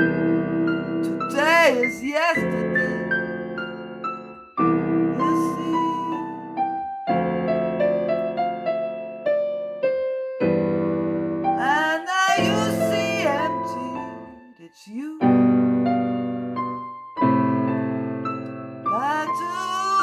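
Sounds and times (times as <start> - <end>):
electric piano music: 0.0 - 14.6, 15.2 - 20.0
person's voice: 1.0 - 3.1, 5.2 - 6.5, 11.6 - 15.5, 18.9 - 20.0.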